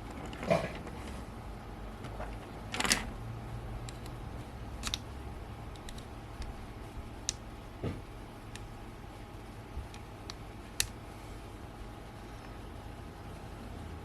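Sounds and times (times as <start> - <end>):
low steady hum: 0.0 - 14.0
small lens parts clicking: 3.8 - 4.2, 4.8 - 5.0, 5.7 - 6.6.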